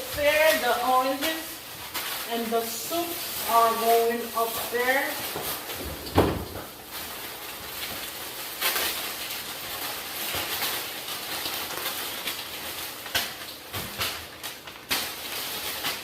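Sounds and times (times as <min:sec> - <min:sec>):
plastic bags rustling: 0:00.0 - 0:16.0.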